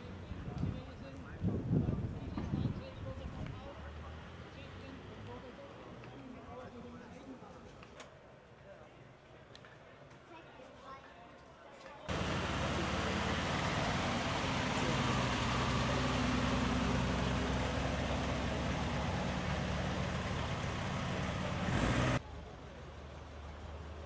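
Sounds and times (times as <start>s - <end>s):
outdoor background noise: 0.0s - 24.0s
car engines rolling past: 12.1s - 24.0s.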